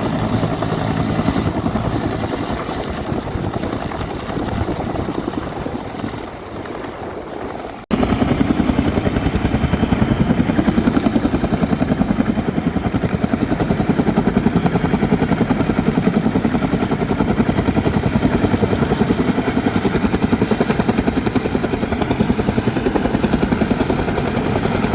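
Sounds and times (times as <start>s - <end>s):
helicopter rotor blades beating: 0.0s - 24.9s.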